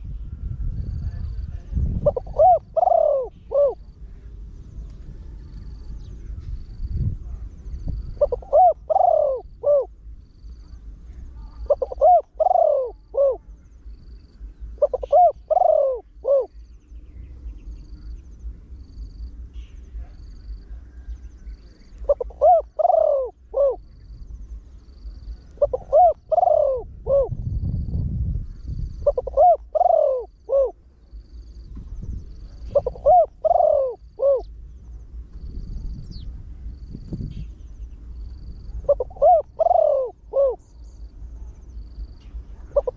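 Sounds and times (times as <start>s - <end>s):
low rumble: 0.0s - 29.8s, 30.4s - 42.9s
dove cooing deeply: 1.2s - 4.5s, 7.8s - 28.0s, 28.6s - 31.7s, 32.3s - 34.7s, 38.3s - 42.9s.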